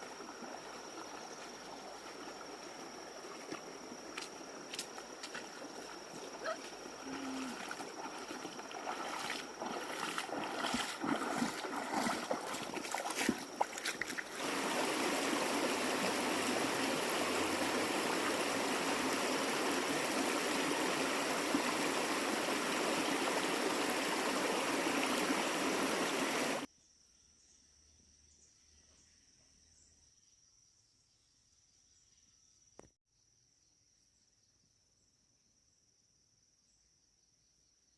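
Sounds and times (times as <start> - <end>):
flowing water: 0.0 - 26.7
insect chirr: 0.0 - 37.9.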